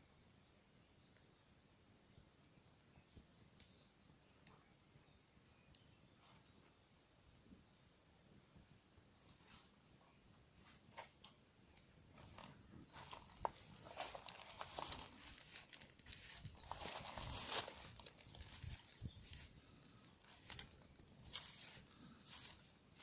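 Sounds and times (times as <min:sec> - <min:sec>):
wood fire crackling and popping: 0:03.6 - 0:05.1, 0:11.2 - 0:22.8.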